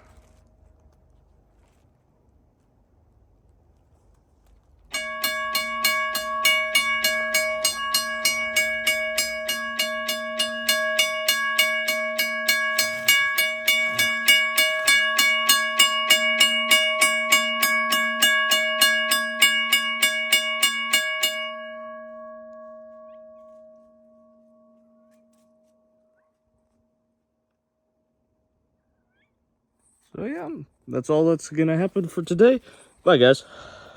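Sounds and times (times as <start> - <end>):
railroad crossing bell ringing: 4.9 - 26.2.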